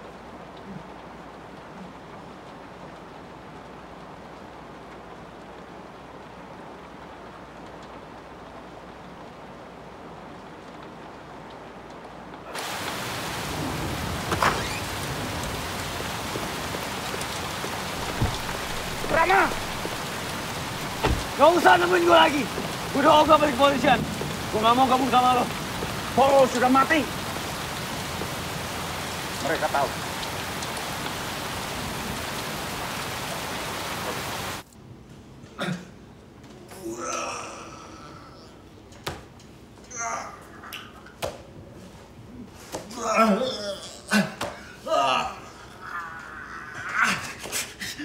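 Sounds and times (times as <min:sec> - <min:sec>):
heavy rain pouring on street: 0:00.0 - 0:34.7, 0:41.6 - 0:48.0
dull thump: 0:18.0 - 0:21.4
man calling out: 0:18.9 - 0:20.0, 0:21.3 - 0:27.2.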